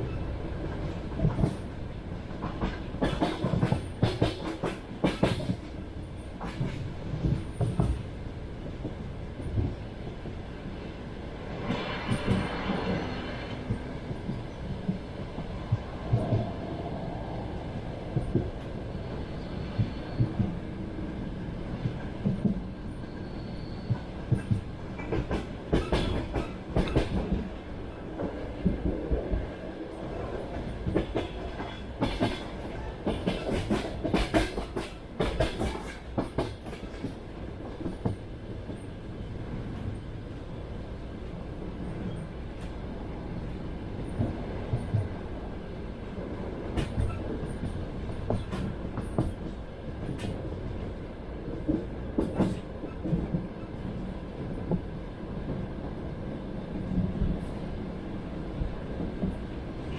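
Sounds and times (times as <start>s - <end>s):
train wheels clacking on rails: 0.6s - 10.4s, 11.6s - 16.5s, 18.1s - 39.0s, 44.0s - 55.7s.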